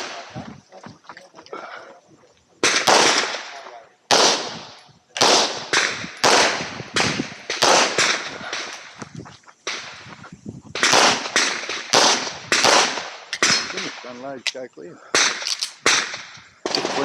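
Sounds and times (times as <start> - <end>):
handgun shots echoing: 5.2 - 8.9, 10.8 - 14.6, 15.2 - 17.0.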